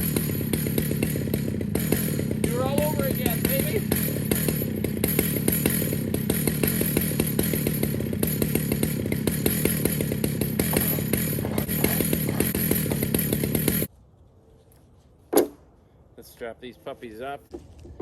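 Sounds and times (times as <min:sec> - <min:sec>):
chainsaw running at high speed: 0:00.0 - 0:13.9.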